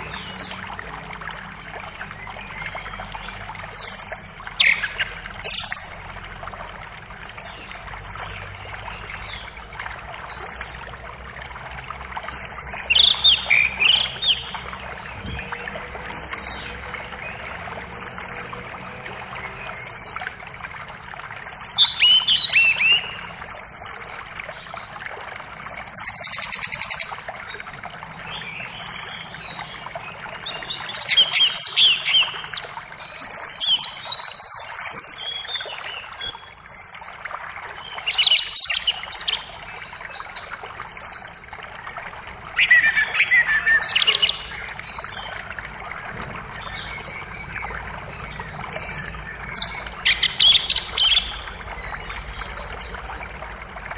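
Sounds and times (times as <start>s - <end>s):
birds singing: 0.0s - 53.9s
creek rushing: 0.0s - 53.9s
bird warbling: 42.6s - 53.2s.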